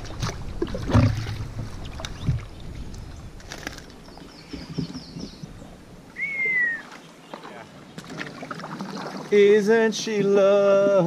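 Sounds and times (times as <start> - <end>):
low wind: 0.0 - 11.0
water noise: 0.0 - 11.0
bird whistle: 6.2 - 7.0.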